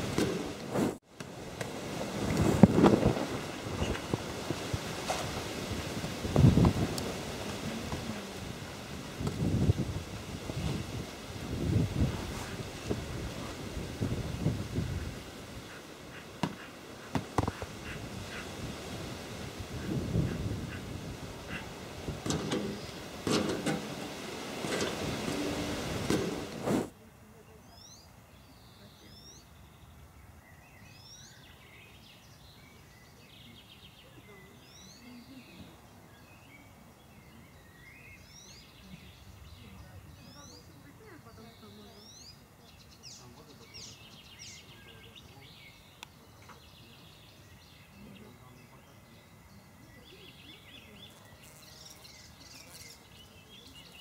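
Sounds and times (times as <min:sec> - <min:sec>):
faint outdoor background noise: 0:00.0 - 0:54.0
outdoor rumble: 0:21.5 - 0:26.9
bird chirping: 0:27.4 - 0:54.0.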